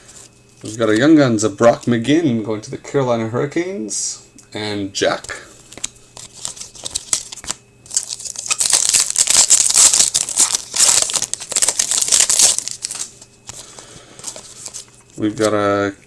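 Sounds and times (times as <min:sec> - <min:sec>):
foil wrapper tearing and crinkling: 0:05.7 - 0:15.6.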